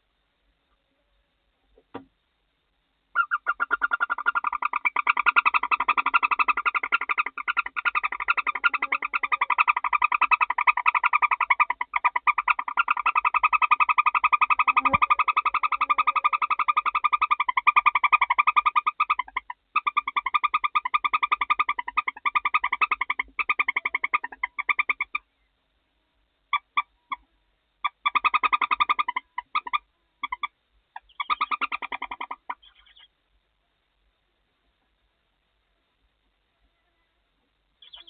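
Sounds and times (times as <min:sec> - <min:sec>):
owl chittering rattle: 0:03.1 - 0:25.2, 0:26.5 - 0:27.2, 0:27.8 - 0:33.1.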